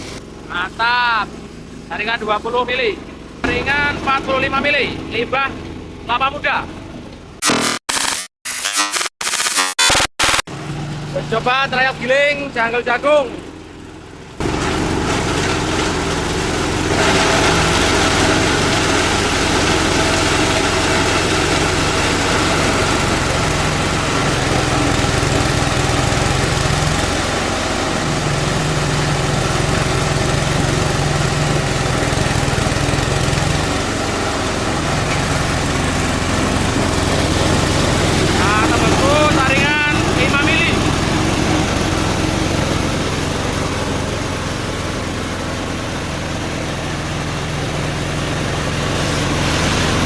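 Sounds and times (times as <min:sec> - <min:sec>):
diesel engine drone: 0:00.0 - 0:07.8, 0:09.9 - 0:50.0
corn cobs shredding in grinder: 0:14.4 - 0:50.0.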